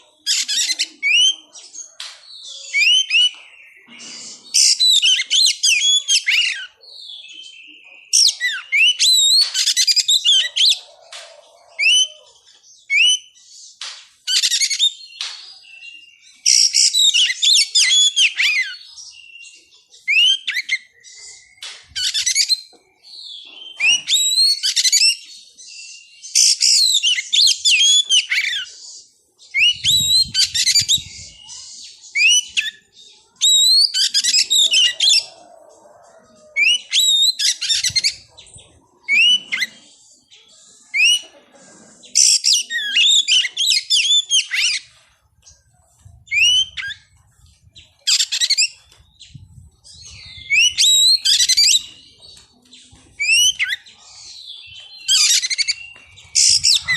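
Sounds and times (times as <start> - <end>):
bird singing whistled notes: 29.5 - 35.2, 46.3 - 47.1.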